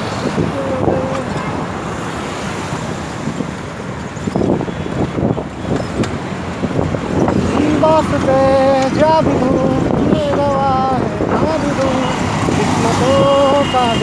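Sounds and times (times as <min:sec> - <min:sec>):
road traffic noise: 0:00.0 - 0:14.0
wind on microphone: 0:00.0 - 0:14.0.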